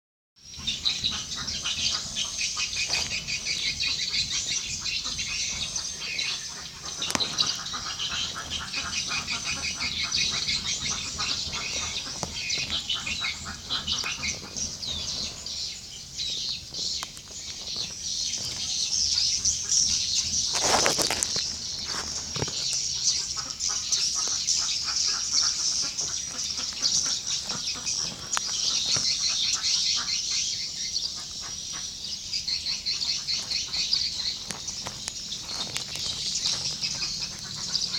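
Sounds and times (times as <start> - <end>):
noisy rustle: 32.9 - 37.9.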